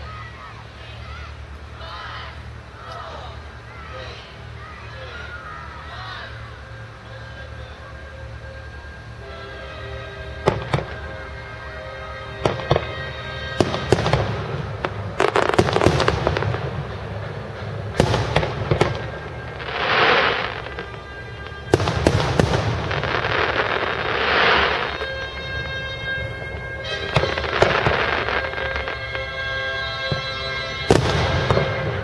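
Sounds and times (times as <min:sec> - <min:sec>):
fireworks crackling hiss: 0:00.0 - 0:32.0
fireworks bangs: 0:10.3 - 0:32.0.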